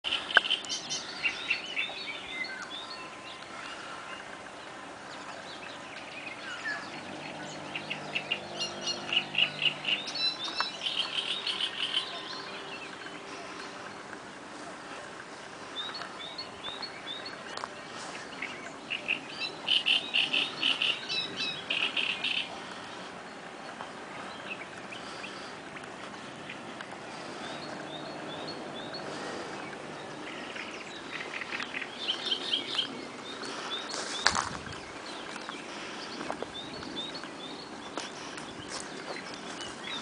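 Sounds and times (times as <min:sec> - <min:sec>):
birds singing: 0:00.0 - 0:40.0.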